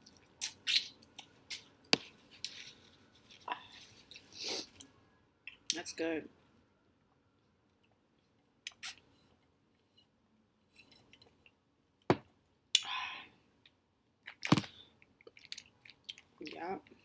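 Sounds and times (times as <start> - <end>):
chewing crunchy food: 14.2 - 16.4.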